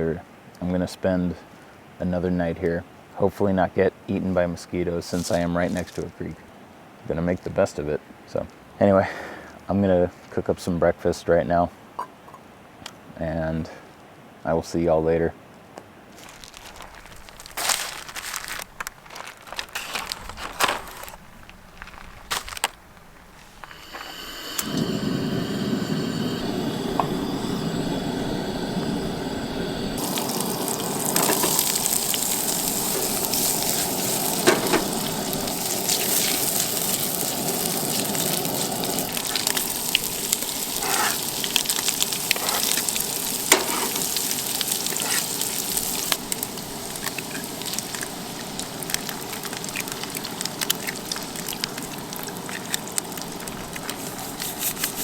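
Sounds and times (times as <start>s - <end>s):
steady hum with held tones: 23.4s - 53.9s
food sizzling in a pan: 23.5s - 55.0s
utensil clicking and scraping: 53.5s - 55.0s.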